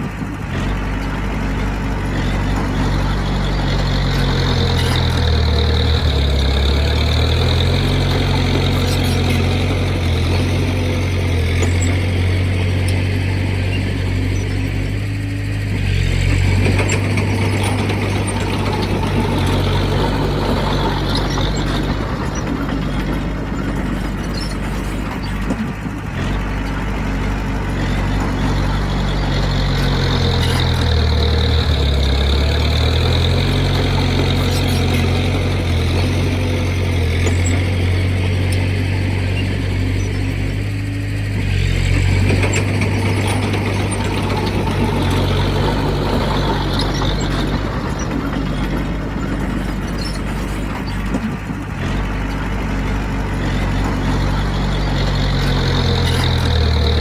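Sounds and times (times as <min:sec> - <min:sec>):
heavy machinery diesel engine running: 0:00.0 - 0:57.0.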